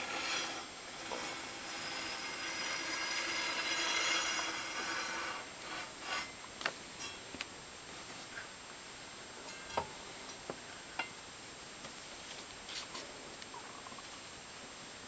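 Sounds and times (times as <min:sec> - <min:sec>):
object scraping across table saw: 0:00.0 - 0:06.4.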